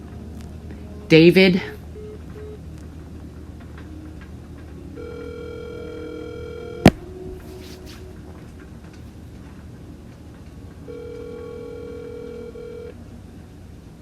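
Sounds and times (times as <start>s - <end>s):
telephone ringback tone: 2.0s - 2.6s, 5.0s - 7.0s, 10.9s - 13.0s.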